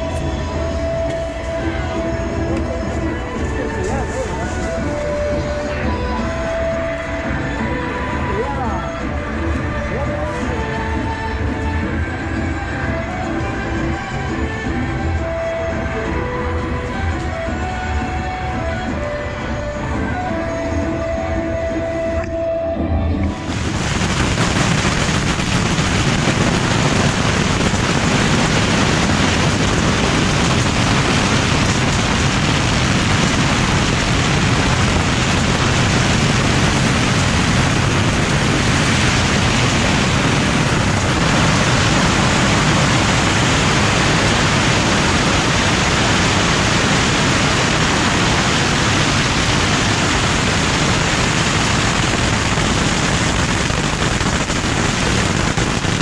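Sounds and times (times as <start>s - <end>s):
rapid crackles and pops: 23.3s - 56.0s
bottle rockets hissing: 23.5s - 56.0s.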